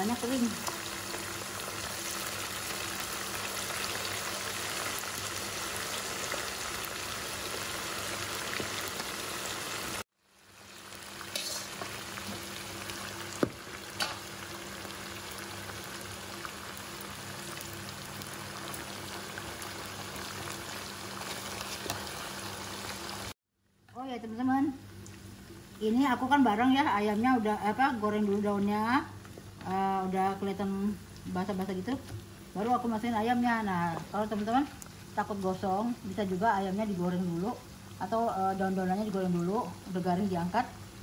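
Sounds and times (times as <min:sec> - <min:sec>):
food sizzling in hot oil: 0:00.0 - 0:23.4, 0:24.3 - 0:41.0.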